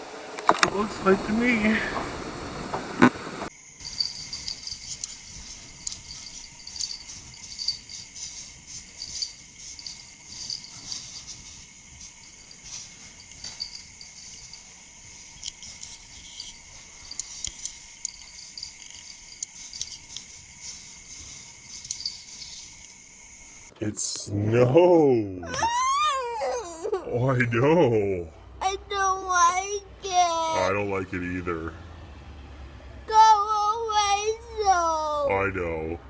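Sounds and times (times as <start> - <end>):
crickets chirping: 3.5 - 23.8, 24.6 - 35.9
faint steady high tone: 3.6 - 23.7.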